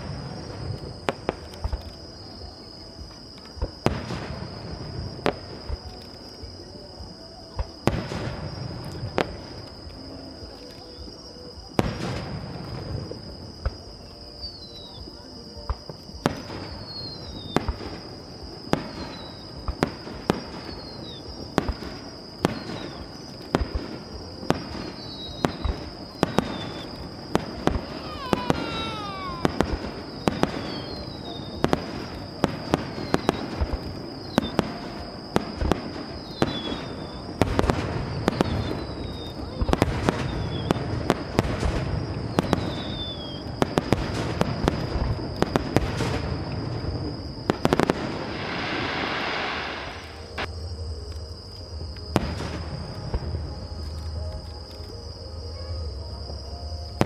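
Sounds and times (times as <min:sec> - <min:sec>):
falling firework whistles: 0:16.2 - 0:50.5
firework shells bursting: 0:24.5 - 0:31.0, 0:47.5 - 0:50.5.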